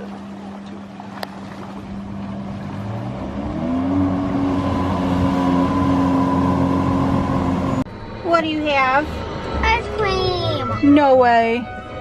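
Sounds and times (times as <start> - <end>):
water and wind rush: 0.0 - 7.9
jet ski engine running: 0.0 - 8.1.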